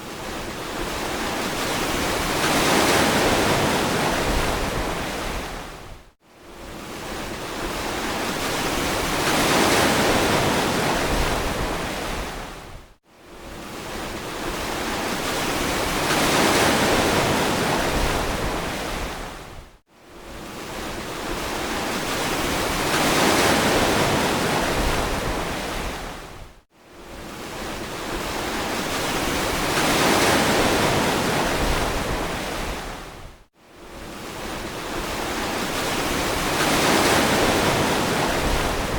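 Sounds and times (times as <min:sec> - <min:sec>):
waves breaking: 0:27.2 - 0:33.1, 0:34.1 - 0:38.9.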